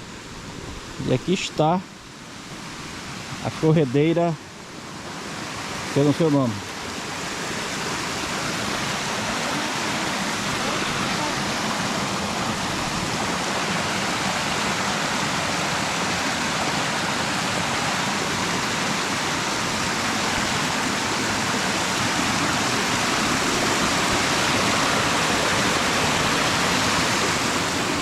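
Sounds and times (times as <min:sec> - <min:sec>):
water rushing over rocks: 0:00.0 - 0:28.0.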